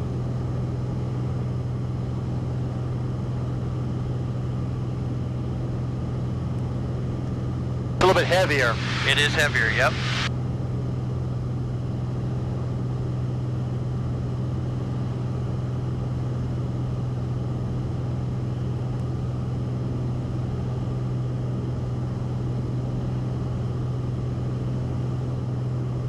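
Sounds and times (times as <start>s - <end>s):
propeller aircraft engine droning: 0.0s - 18.7s.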